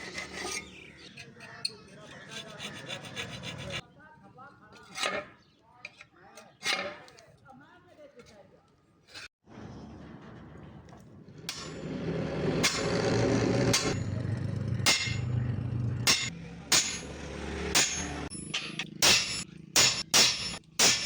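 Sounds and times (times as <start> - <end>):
steady rumble: 9.5 - 20.6
hammer striking steel: 11.4 - 21.0.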